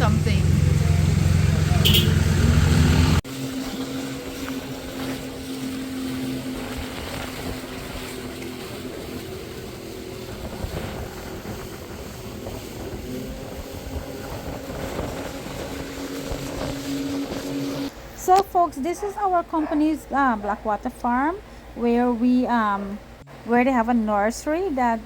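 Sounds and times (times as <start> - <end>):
loud low rumble: 0.0 - 3.2
motorboat engine running: 0.0 - 18.4.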